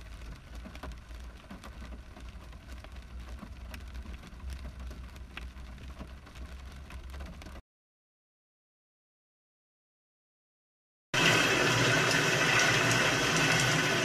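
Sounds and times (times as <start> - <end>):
raindrops tapping: 0.0 - 7.6, 11.2 - 14.0.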